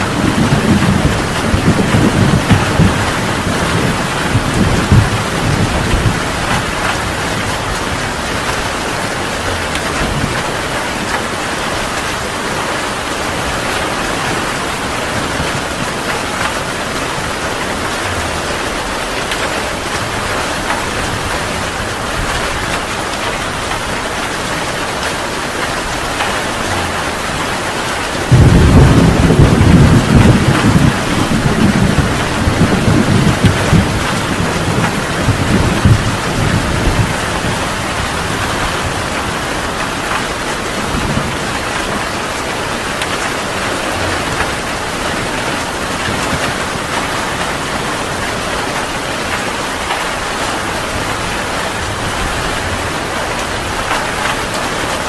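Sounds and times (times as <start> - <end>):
heavy rain falling: 0.0 - 55.0
thunder clap and rumble: 0.0 - 55.0.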